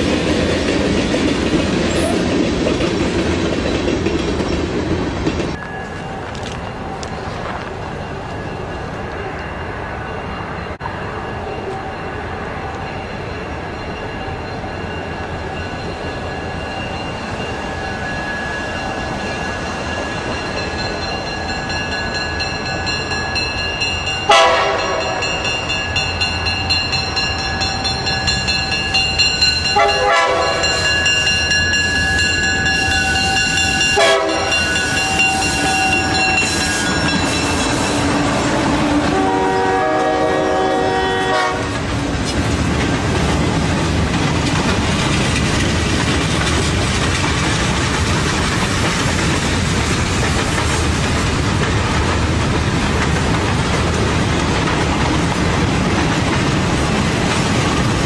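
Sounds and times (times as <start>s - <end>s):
train engine and wheel noise: 0.0s - 58.0s
train horn blasts: 24.3s - 25.5s, 29.8s - 30.9s, 34.0s - 36.9s, 38.8s - 41.8s.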